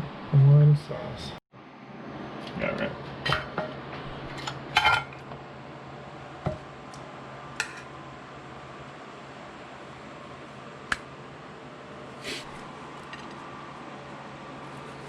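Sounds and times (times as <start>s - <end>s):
steady low hum: 0.0s - 15.0s
metal utensils clinking on cookware: 4.8s - 5.2s.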